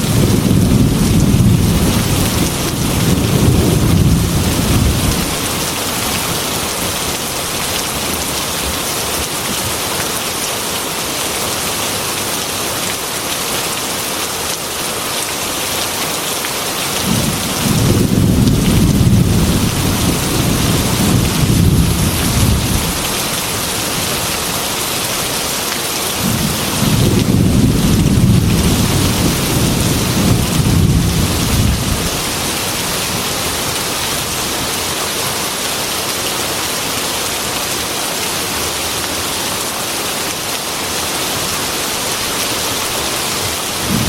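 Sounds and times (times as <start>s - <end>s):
thunder rumbling: 0.0s - 6.0s, 17.0s - 24.5s, 26.2s - 33.3s, 43.8s - 44.0s
heavy rain on a metal roof: 0.0s - 44.0s.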